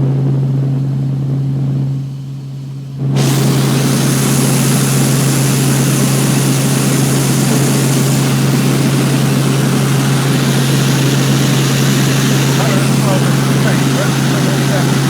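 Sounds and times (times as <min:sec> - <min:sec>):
helicopter engine and rotors drone: 0:03.3 - 0:15.0.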